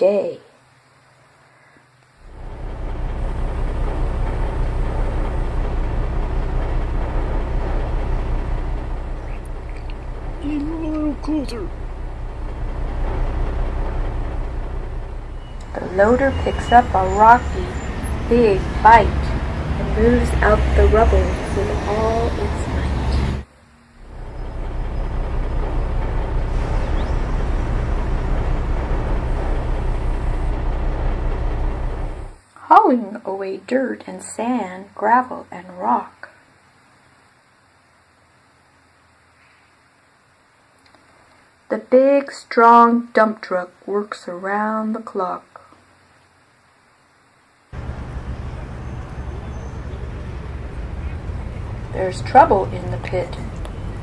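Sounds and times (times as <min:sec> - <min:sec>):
bulldozer engine rumbling: 0:02.1 - 0:32.4, 0:47.7 - 0:54.0.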